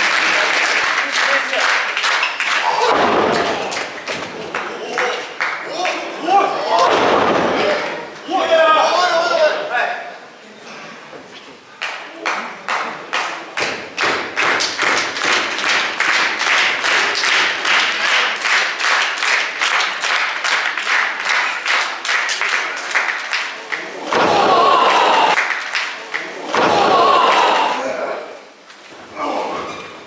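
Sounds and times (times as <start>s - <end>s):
audience clapping in unison: 0.0s - 6.2s, 11.8s - 27.8s.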